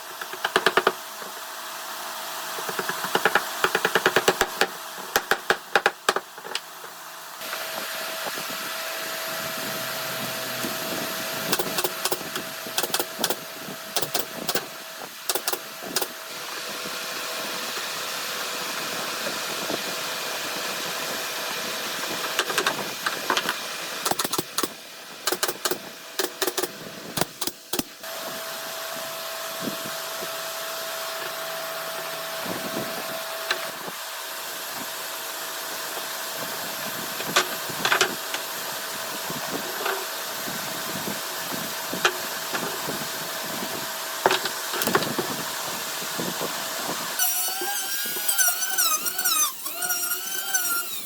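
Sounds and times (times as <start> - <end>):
rapid clicking and knocking: 0.2 - 1.0, 2.6 - 6.6, 11.5 - 13.4, 15.3 - 16.1, 24.1 - 24.7, 25.3 - 27.9
woodworking power tool whining: 6.6 - 26.7, 27.3 - 51.0.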